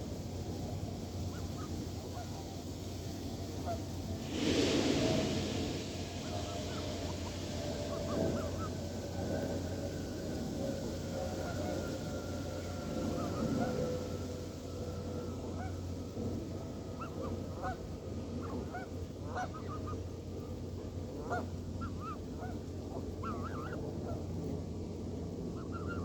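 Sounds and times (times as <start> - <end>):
steady low hum: 0.0 - 26.0
geese honking: 6.3 - 16.0.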